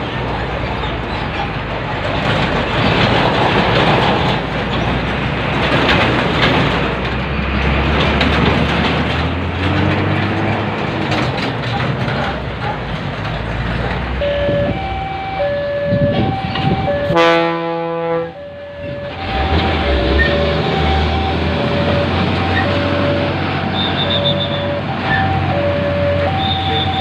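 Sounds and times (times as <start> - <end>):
train wheels rumbling on track: 0.0 - 27.0
two-tone train horn: 14.5 - 27.0.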